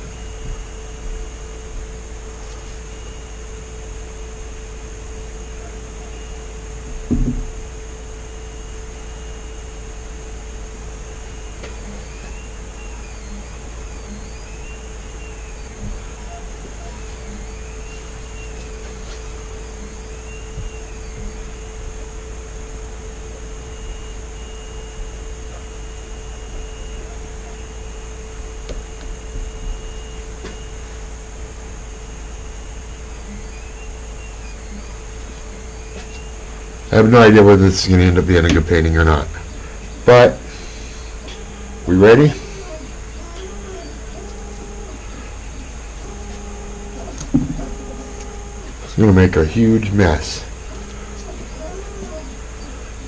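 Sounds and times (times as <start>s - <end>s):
machine hum with high whine: 0.0s - 53.0s
single knock: 7.1s - 7.5s.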